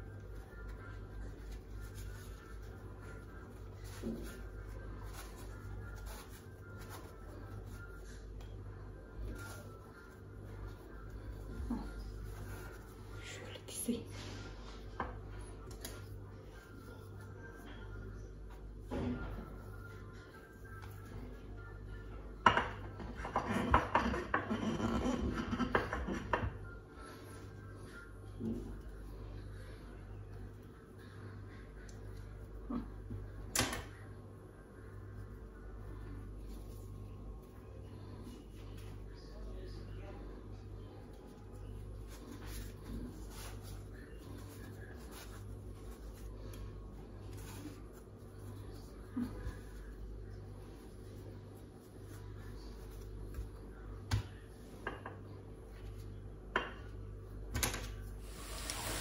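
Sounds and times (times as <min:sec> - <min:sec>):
hands rustling and scraping: 0:00.0 - 0:13.4, 0:41.1 - 0:54.8
dishes and utensils clattering: 0:22.4 - 0:26.6.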